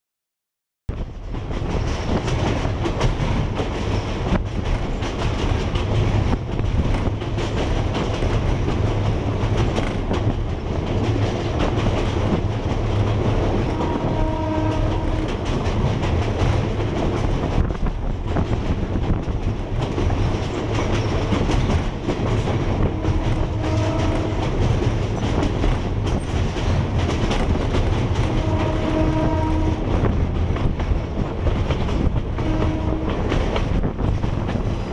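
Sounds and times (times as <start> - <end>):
train wheels clattering on track: 0.9 - 34.9
train horn: 13.6 - 15.6, 22.7 - 24.8, 28.2 - 30.1, 32.3 - 33.5.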